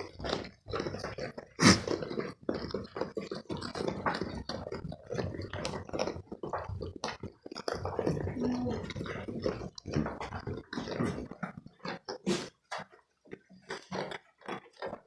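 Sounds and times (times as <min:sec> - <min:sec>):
goats chewing grain: 0:00.0 - 0:15.0.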